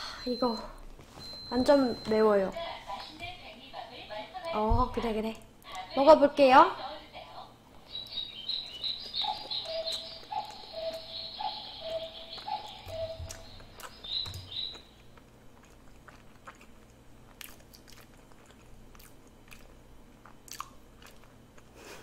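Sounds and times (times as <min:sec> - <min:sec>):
high chirps: 0:07.8 - 0:15.0
chewing dumpling: 0:07.9 - 0:22.0.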